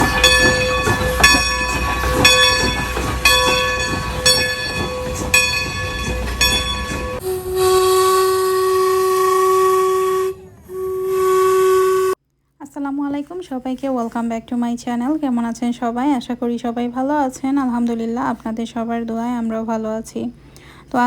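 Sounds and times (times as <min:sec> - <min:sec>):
locomotive bell ringing: 0:00.0 - 0:07.5
steam engine hiss and rumble: 0:00.0 - 0:12.2
steam whistle blast: 0:07.0 - 0:12.2.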